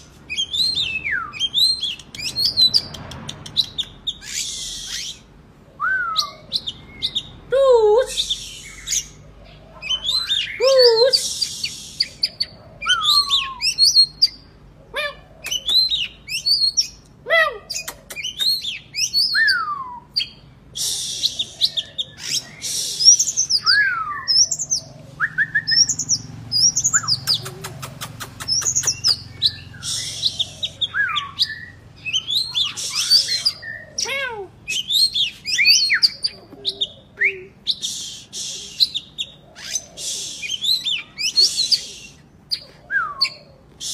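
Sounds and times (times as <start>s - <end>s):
bird whistled song: 0.3s - 7.4s, 8.1s - 9.2s, 9.9s - 14.5s, 15.4s - 17.0s, 17.8s - 34.1s, 34.7s - 43.9s
bird rapid clicks: 1.8s - 4.0s, 27.0s - 29.2s
bird harsh rasping notes: 26.1s - 36.3s.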